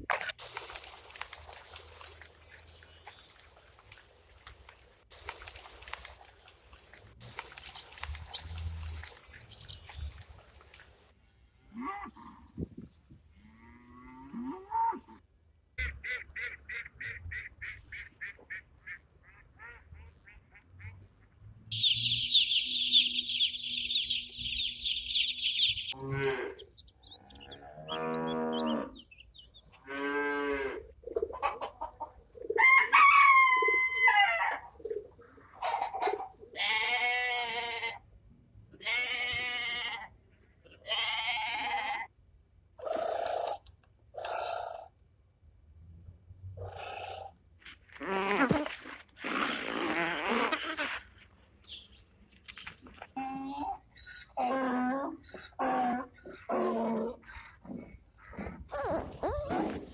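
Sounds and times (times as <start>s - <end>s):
cattle mooing: 25.9s - 29.0s
chickens clucking and crowing: 30.7s - 36.5s.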